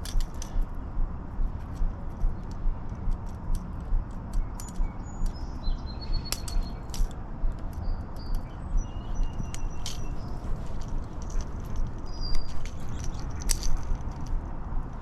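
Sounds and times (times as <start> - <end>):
small clicks: 0.0 - 0.7, 1.6 - 15.0
low pulsing rumble: 0.0 - 6.8
bird chirps: 4.4 - 6.9, 7.7 - 10.8, 12.0 - 13.9.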